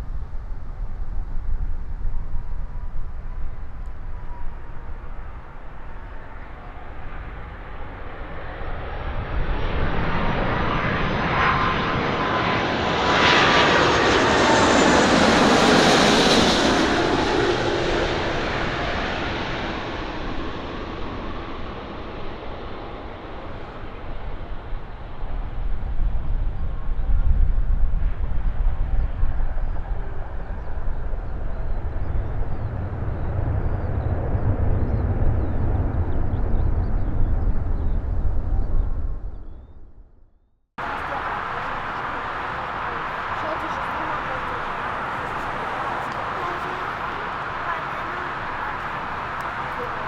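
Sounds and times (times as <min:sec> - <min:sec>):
jet airliner passing: 0:00.0 - 0:39.8, 0:40.8 - 0:50.0
jet engine whine falling in pitch: 0:00.0 - 0:39.8, 0:40.8 - 0:50.0.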